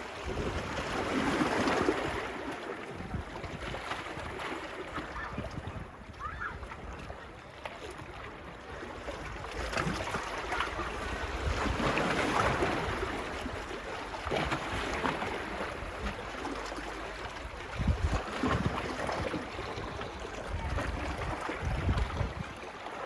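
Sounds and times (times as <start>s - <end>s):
low wind rumble on microphone: 0.0s - 2.2s, 2.9s - 4.4s, 5.2s - 7.4s, 17.4s - 22.6s
small waves washing onto beach: 0.0s - 23.0s.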